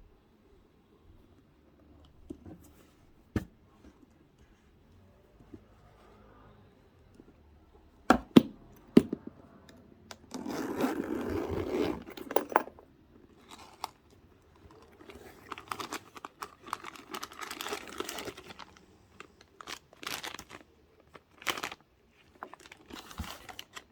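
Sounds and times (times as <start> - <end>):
paper rustling and crinkling: 13.4 - 23.9.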